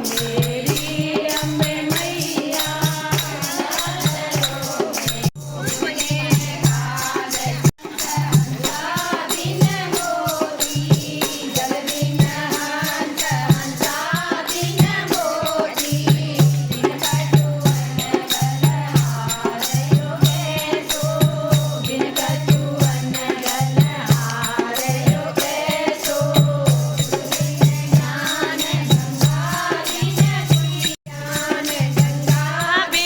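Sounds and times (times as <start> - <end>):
group devotional singing: 0.0 - 33.0
rattle-like percussion beat: 0.0 - 33.0
low repeating drum beat: 13.2 - 33.0.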